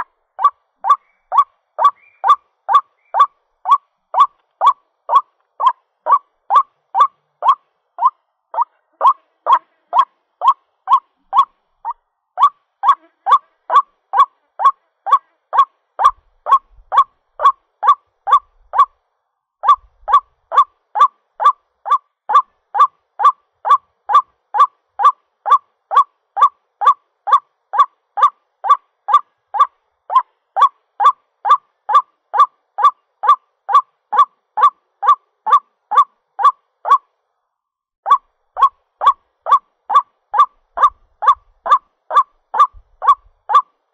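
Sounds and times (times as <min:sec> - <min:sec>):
waterhen calling short notes: 0:38.1 - 0:43.7.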